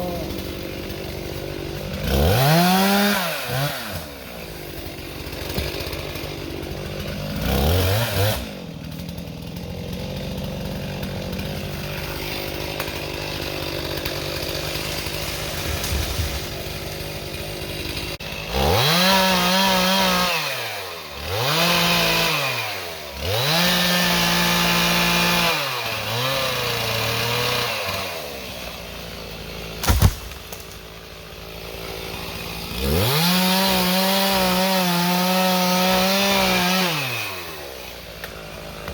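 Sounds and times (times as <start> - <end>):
chainsaw engine revving: 0.0 - 38.9
sharp crack: 29.8 - 30.9.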